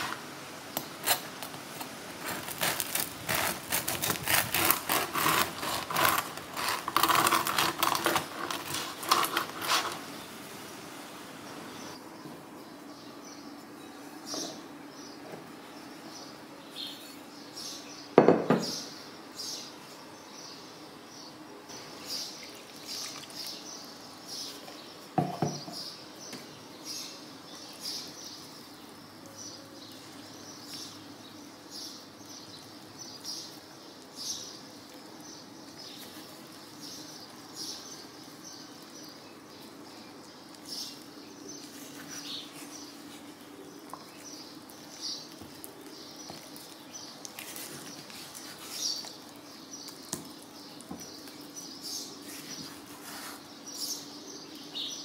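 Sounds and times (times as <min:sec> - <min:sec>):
spatula scraping dough in glass bowl: 0:02.2 - 0:10.0
knocks on bowl: 0:18.2 - 0:18.7, 0:25.2 - 0:25.8.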